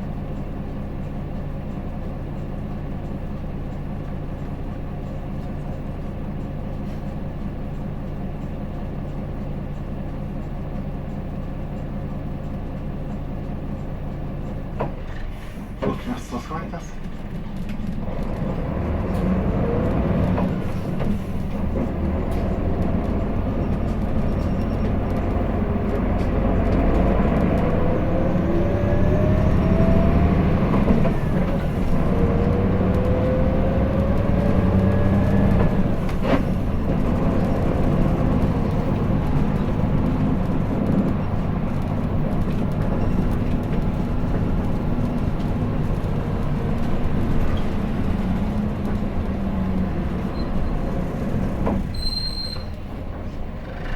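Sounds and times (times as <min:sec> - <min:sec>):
bus engine accelerating: 0:00.0 - 0:53.9.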